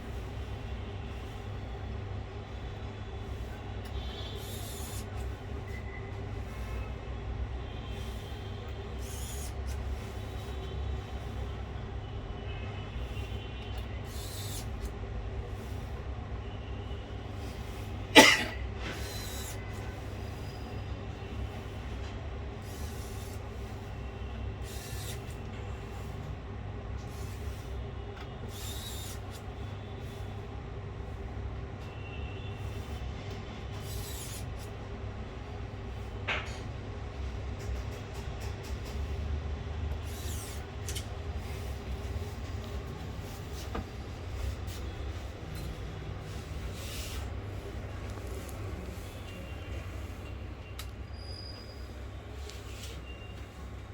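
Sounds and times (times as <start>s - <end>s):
low electrical hum: 0.0s - 37.7s.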